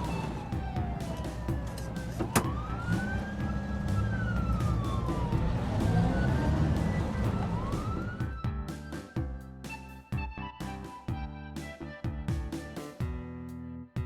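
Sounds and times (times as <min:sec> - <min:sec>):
low engine rumble: 0:00.0 - 0:09.4
siren wailing: 0:00.0 - 0:10.6.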